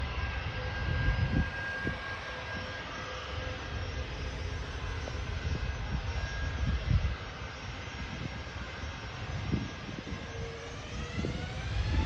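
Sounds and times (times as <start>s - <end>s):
faint engine whine: 0.0s - 12.0s
jet engines roaring for takeoff: 0.0s - 12.0s.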